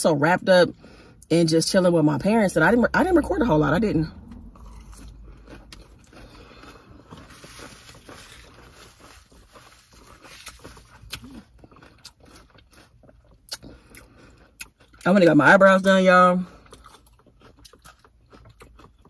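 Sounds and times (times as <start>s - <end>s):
person chewing crisp salad: 4.2s - 15.2s, 16.4s - 19.0s.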